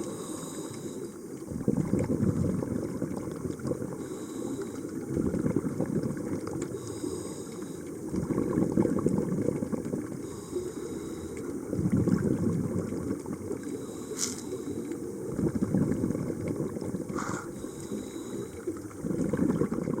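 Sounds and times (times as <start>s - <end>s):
diver breathing through regulator: 0.0s - 1.3s, 3.9s - 5.1s, 6.7s - 8.1s, 10.2s - 11.7s, 13.6s - 15.2s, 17.1s - 18.8s.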